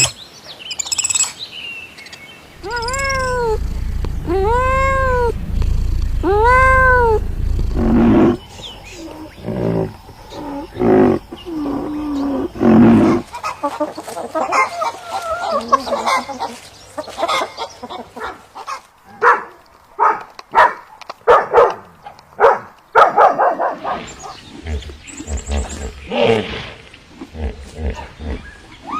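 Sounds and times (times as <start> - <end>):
chirping chorus: 2.6 - 13.3
low pitched animal calls: 2.6 - 13.3.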